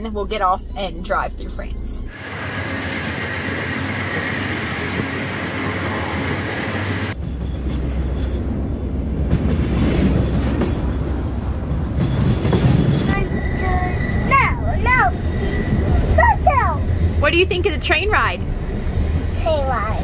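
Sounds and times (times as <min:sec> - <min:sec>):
train wagons rumbling: 0:02.1 - 0:20.0
faint high tone: 0:13.2 - 0:16.8.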